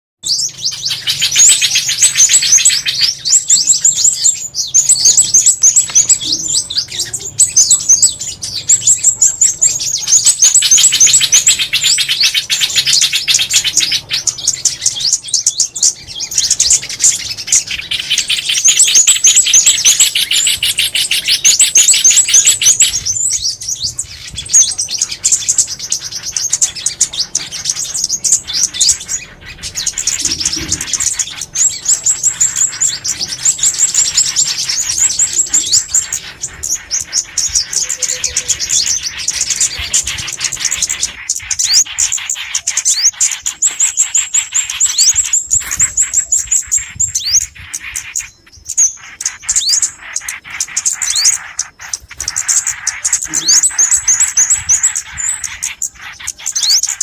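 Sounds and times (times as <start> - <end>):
songbirds chirping and trilling: 0.2 - 57.0.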